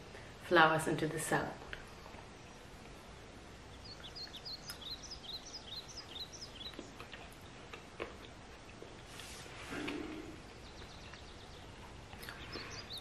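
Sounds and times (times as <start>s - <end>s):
steady background hiss: 0.0s - 13.0s
songbird singing high chirps: 2.0s - 7.6s, 10.5s - 13.0s.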